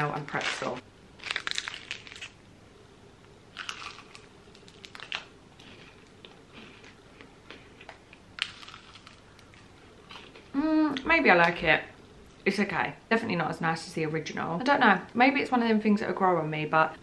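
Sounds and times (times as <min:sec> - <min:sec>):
person chewing crunchy cereal bar: 0:00.6 - 0:02.4, 0:03.5 - 0:10.5.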